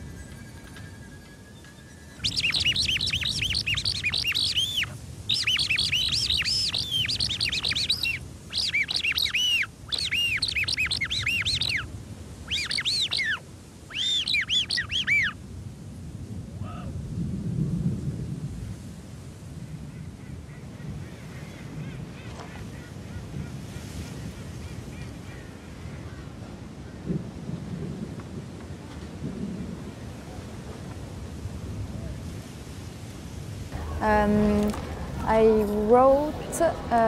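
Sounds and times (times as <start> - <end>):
rapid high bird chirping: 1.8 - 11.8, 12.5 - 15.4.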